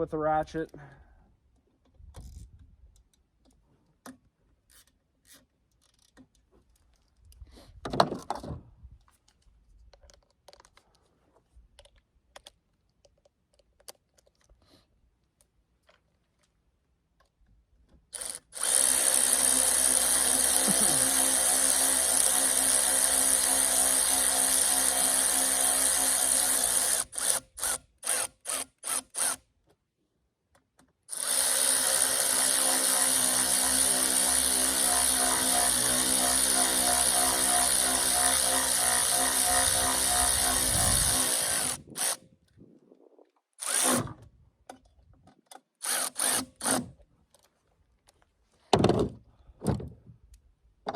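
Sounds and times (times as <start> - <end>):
electric ratchet running: 18.2 - 29.4, 31.1 - 42.2, 43.6 - 44.0, 45.8 - 46.8.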